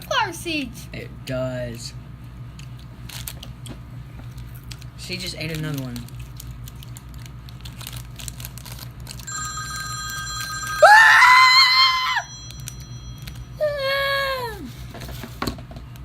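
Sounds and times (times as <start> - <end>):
child squealing: 10.8 - 12.3, 13.6 - 14.7
child crying out: 10.8 - 12.4, 13.6 - 14.7.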